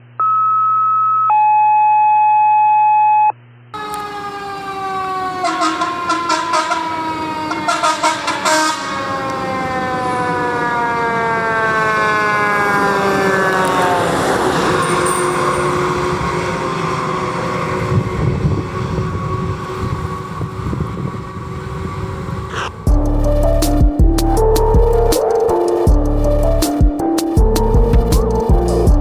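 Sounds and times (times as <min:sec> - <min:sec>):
fire engine siren wailing: 0:03.8 - 0:26.0
rapid pulsing siren blasts: 0:03.8 - 0:26.8.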